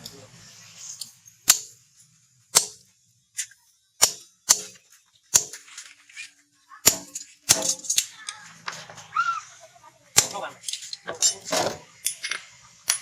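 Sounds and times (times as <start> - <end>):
hammer striking steel rebar: 2.5 - 2.8, 3.4 - 5.6, 6.8 - 8.0.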